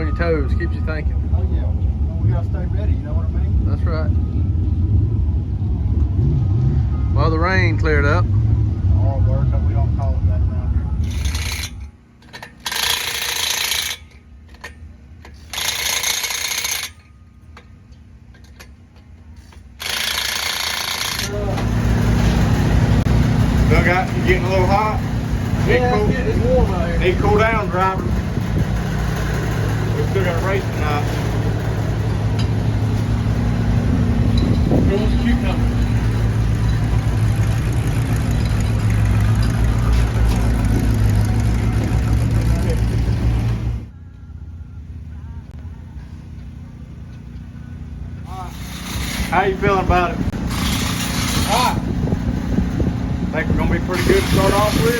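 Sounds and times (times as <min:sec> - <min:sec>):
engine idling: 0:06.9 - 0:54.9
tools clicking: 0:11.0 - 0:17.7
impact wrench rattling: 0:11.0 - 0:22.5, 0:48.5 - 0:49.6, 0:50.4 - 0:51.9.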